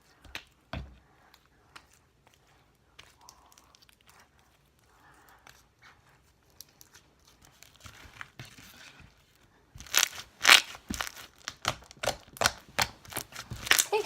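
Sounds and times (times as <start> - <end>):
slime crackling and popping: 9.8 - 14.0.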